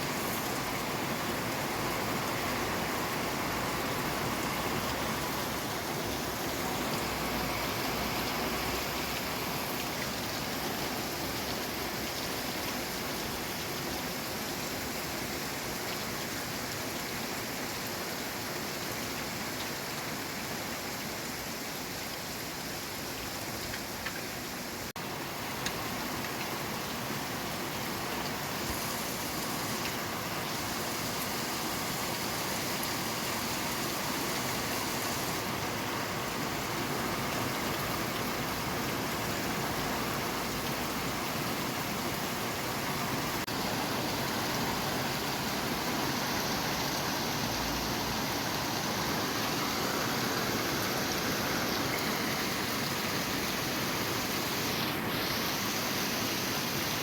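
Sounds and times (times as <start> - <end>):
steady rain hissing: 0.0 - 57.0.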